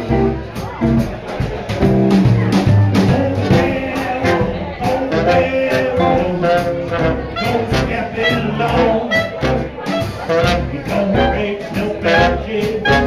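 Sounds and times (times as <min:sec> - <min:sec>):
swing band playing: 0:00.0 - 0:13.0
horns playing tune: 0:02.3 - 0:13.0.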